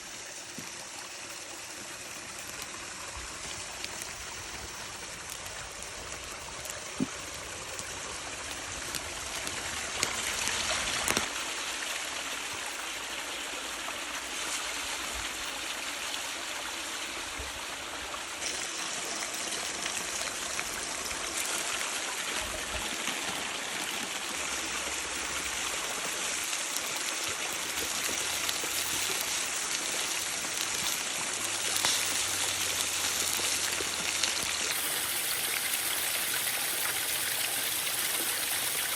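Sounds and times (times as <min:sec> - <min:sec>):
meat sizzling in a pan: 0:22.8 - 0:38.9.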